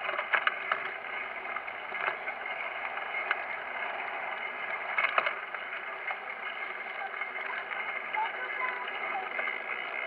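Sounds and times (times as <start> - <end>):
bicycle tyre and wind noise: 0.0 - 10.0
light clicks and rattles: 0.0 - 10.0.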